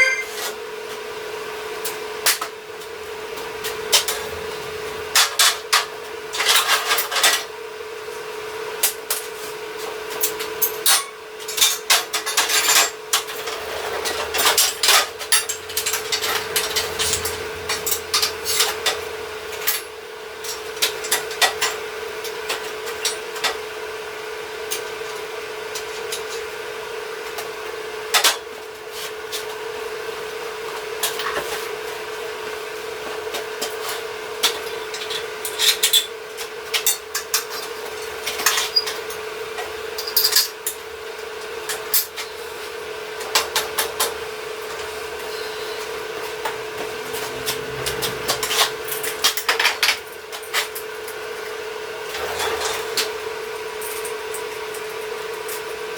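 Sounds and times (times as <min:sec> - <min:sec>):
machine hum: 0:44.4 - 0:50.3.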